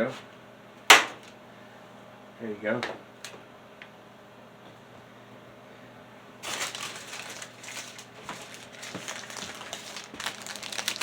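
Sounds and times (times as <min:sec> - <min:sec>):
wrapping crinkling: 0:06.4 - 0:11.0.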